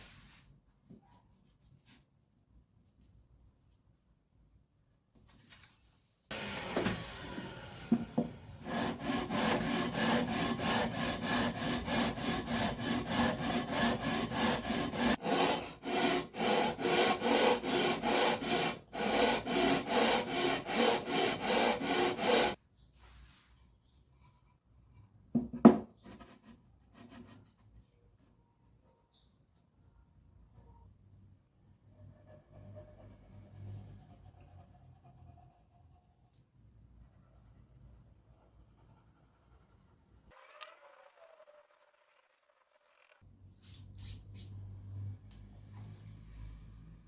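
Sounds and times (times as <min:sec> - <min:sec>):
hand saw cutting wood: 0:08.6 - 0:22.6.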